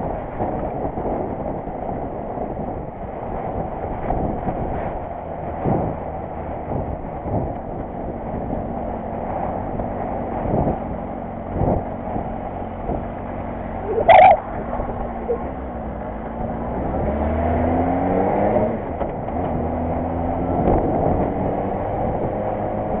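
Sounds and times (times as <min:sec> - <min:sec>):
brief sharp sound: 0:13.9 - 0:14.4.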